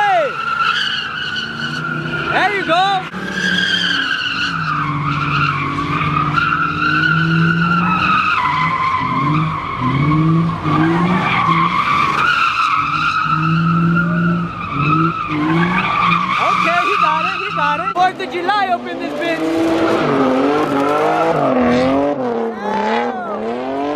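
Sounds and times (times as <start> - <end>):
tyres squealing: 0.0 - 23.5
car engine revving high: 1.5 - 23.9.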